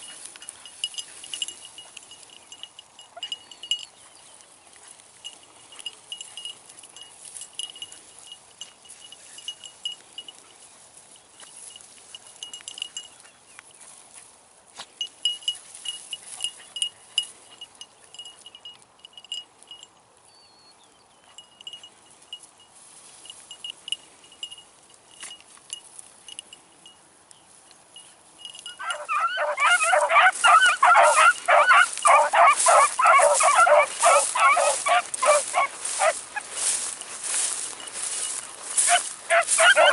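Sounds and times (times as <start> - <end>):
hounds baying: 0.0 - 10.7, 28.0 - 39.9.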